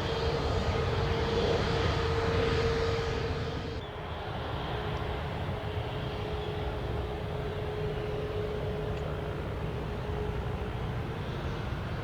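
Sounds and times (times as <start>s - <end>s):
jet engine droning: 0.0s - 4.3s.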